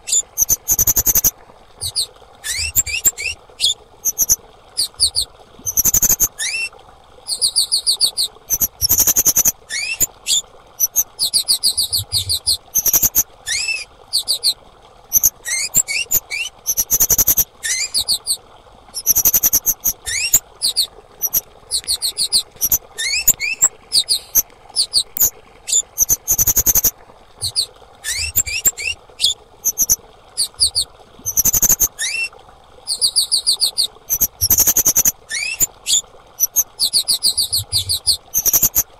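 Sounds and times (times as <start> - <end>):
high-pitched insect chirps: 0.4 - 1.3, 4.0 - 4.4, 5.7 - 6.3, 8.5 - 9.5, 12.8 - 13.2, 15.1 - 17.4, 19.0 - 20.4, 21.2 - 21.9, 22.6 - 23.4, 26.0 - 26.9, 29.6 - 30.0, 31.3 - 31.8, 34.1 - 35.1, 38.4 - 38.8.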